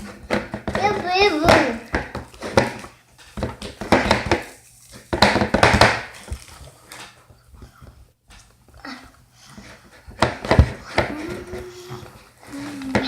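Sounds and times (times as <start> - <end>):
crackling crinkling handling noise: 2.2 - 8.8.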